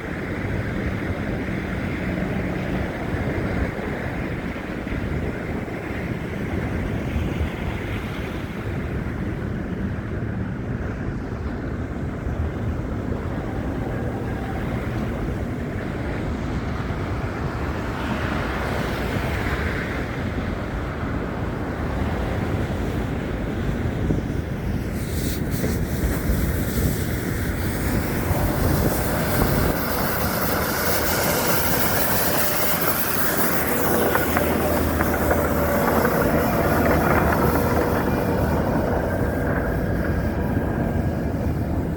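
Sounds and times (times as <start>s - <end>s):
wind: 0.0s - 41.9s
traffic rumble: 20.1s - 41.9s
faint whines: 26.1s - 41.9s.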